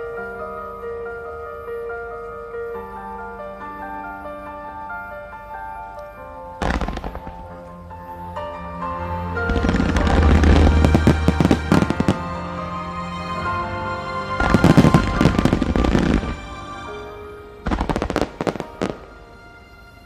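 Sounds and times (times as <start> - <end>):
song playing: 0.0 - 20.0
fireworks bangs and crackling: 6.6 - 7.6, 9.5 - 12.3, 14.4 - 16.4, 17.6 - 19.1.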